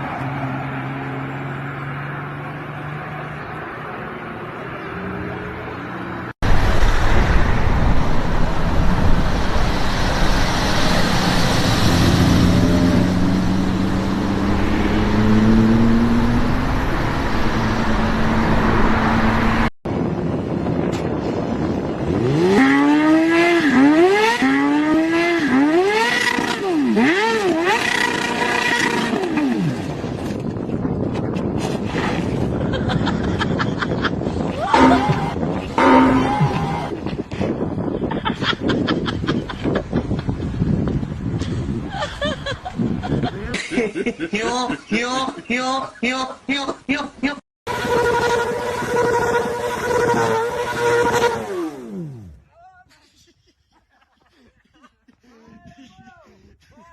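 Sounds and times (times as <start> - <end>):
sports car engine revving: 22.1 - 29.8, 34.7 - 36.9, 47.7 - 52.4.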